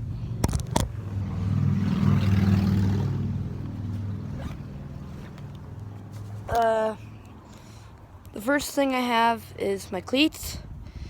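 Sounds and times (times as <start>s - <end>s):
motor engine passing: 0.0s - 7.1s.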